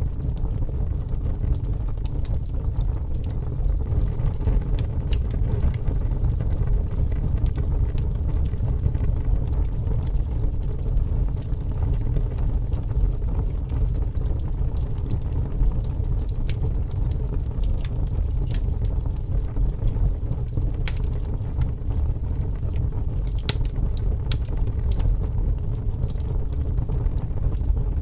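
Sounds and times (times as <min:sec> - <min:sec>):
fire crackling and popping: 0:00.0 - 0:28.0
fire roaring: 0:00.0 - 0:28.0.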